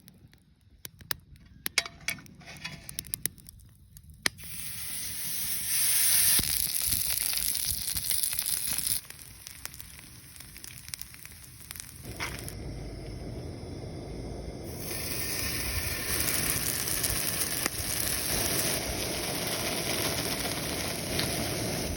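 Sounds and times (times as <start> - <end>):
food sizzling on a griddle: 4.3 - 12.6, 14.6 - 21.9.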